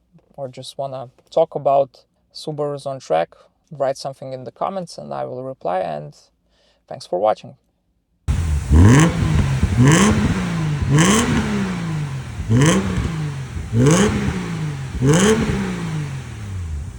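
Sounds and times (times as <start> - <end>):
car engine revving: 8.3 - 16.9.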